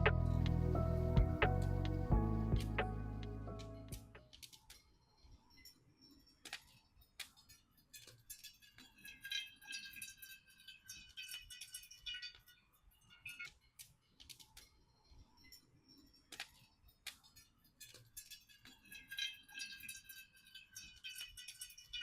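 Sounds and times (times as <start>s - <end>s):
small hard objects clinking: 7.1s - 13.6s, 16.4s - 22.0s
high ringing tinkles: 8.0s - 13.5s, 18.2s - 22.0s.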